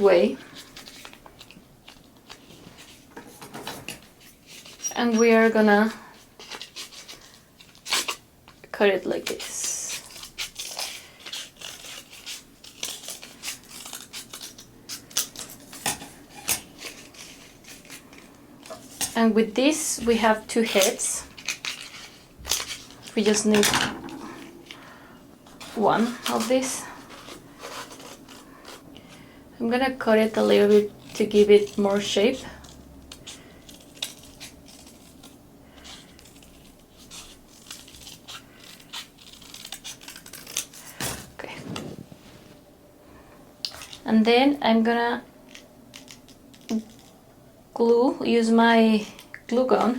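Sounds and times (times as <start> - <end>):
scissors snipping paper: 9.2 - 18.9, 30.1 - 41.0.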